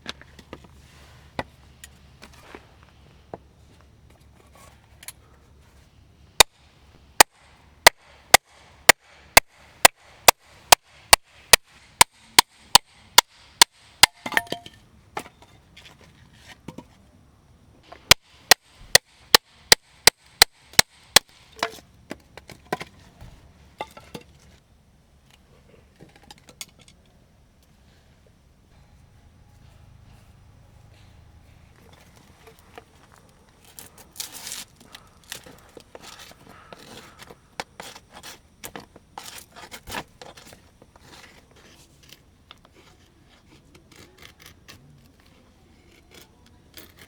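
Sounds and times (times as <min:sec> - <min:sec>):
axe chopping wood: 0:07.2 - 0:14.6, 0:17.9 - 0:23.0.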